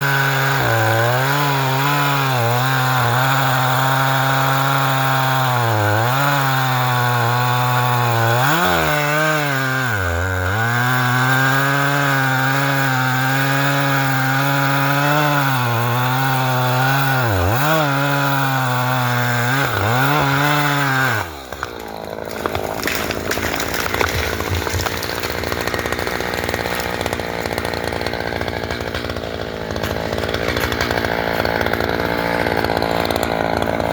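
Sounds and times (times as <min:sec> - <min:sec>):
chainsaw cutting wood: 0:00.0 - 0:33.9
sharp cracks: 0:21.3 - 0:33.6.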